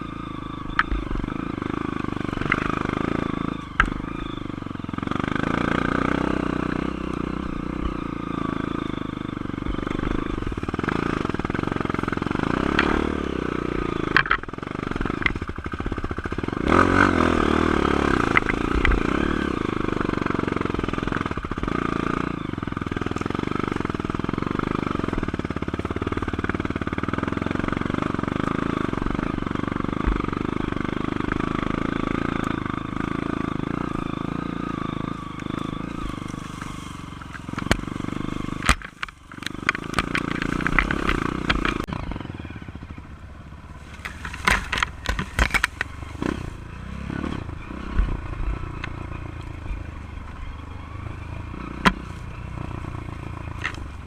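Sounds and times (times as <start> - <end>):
dirt bike engine revving: 0.0 - 54.0
sharp knocks and clatter: 38.6 - 41.9, 43.9 - 45.9.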